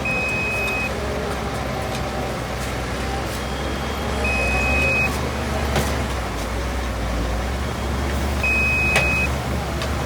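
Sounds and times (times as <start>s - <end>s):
high-pitched beep: 0.0s - 0.9s, 4.2s - 5.1s, 8.4s - 9.3s
diesel engine rumbling: 0.0s - 10.0s.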